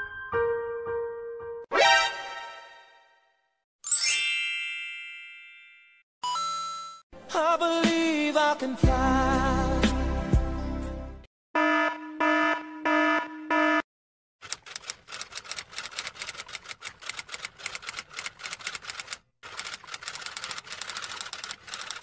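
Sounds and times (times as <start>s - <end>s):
alarm beeping in short pulses: 11.6s - 13.8s
typewriter keys clacking: 14.4s - 22.0s.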